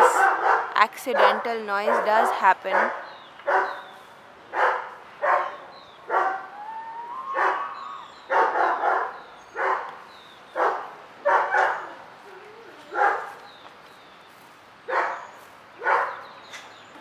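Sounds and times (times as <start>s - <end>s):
dog barking: 0.0s - 3.9s, 4.5s - 6.5s, 7.4s - 10.0s, 10.6s - 12.0s, 12.9s - 13.4s, 14.9s - 16.3s
faint rising whistle: 6.5s - 8.1s.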